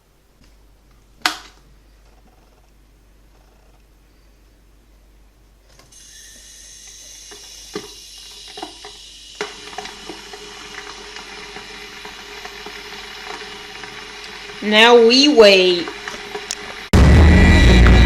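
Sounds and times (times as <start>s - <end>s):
kettle hissing: 5.9s - 17.0s.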